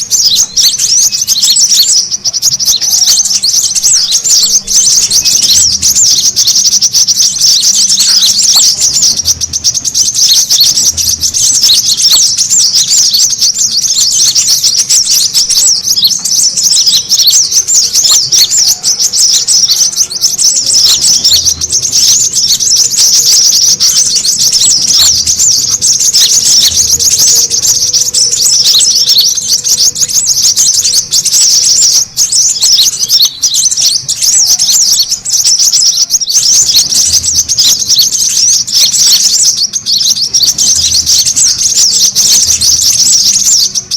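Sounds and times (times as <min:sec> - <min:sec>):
sunbirds chirping rapidly: 0:00.0 - 0:43.9.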